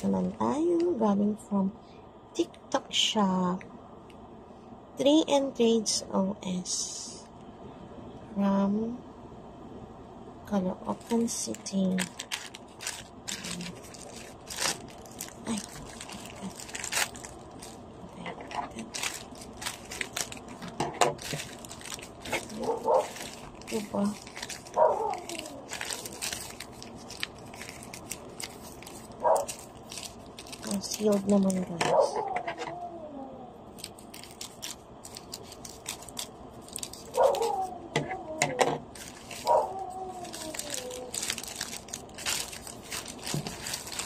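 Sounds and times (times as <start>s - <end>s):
plastic packaging crinkling: 10.8s - 32.2s, 33.7s - 37.8s, 38.9s - 44.0s
pet crying: 24.8s - 26.1s, 37.2s - 38.6s, 39.2s - 41.4s.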